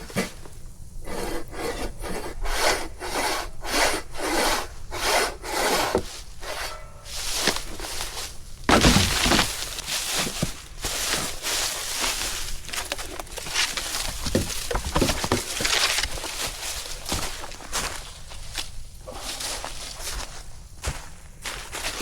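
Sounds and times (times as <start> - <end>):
hand saw cutting wood: 1.0 - 17.6
loud wood crack: 7.2 - 18.0.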